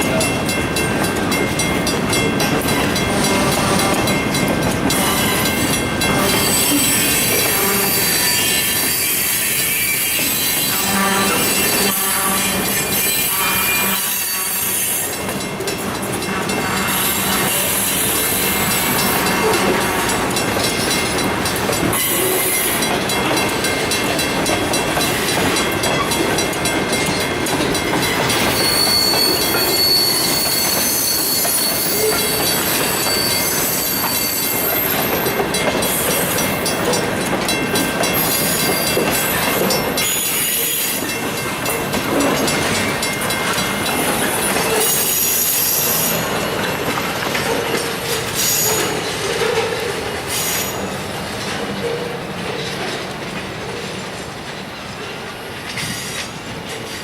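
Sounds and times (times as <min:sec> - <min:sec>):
train wheels clacking over rail joints: 0:00.0 - 0:57.0
high wheel squeal: 0:05.0 - 0:15.2, 0:28.2 - 0:36.8, 0:38.1 - 0:41.2, 0:43.8 - 0:46.7, 0:47.6 - 0:51.0.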